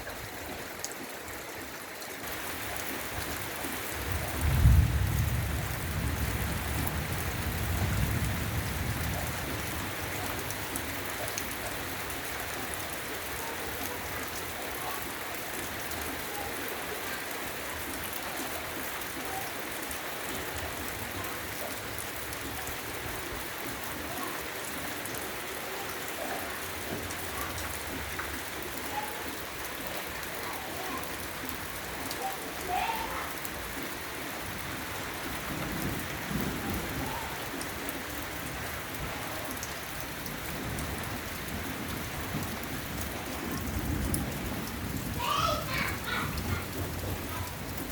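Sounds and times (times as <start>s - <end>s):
heavy rain falling: 0.0s - 47.9s
low thunder rumble: 4.0s - 10.2s.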